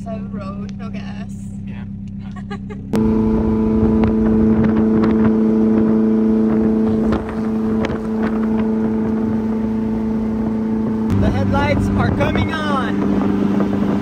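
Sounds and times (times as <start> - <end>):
car engine cruising: 0.0 - 14.0
wind and road rush: 2.9 - 14.0.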